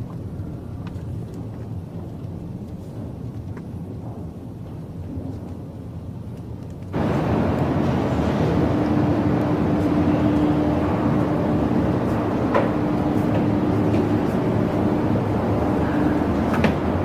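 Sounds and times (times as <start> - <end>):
faint even hum: 0.0 - 17.0
vehicle engine rumble: 6.8 - 17.0.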